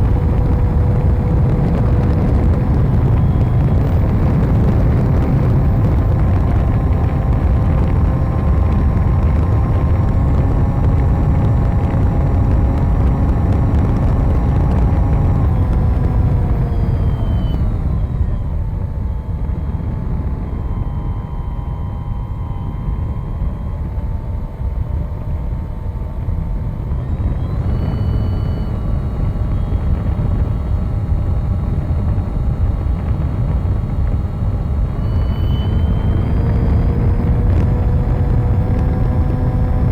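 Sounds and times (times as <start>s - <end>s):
wind buffeting microphone: 0.0s - 21.3s, 22.8s - 39.9s
model plane motor whine: 0.0s - 39.9s.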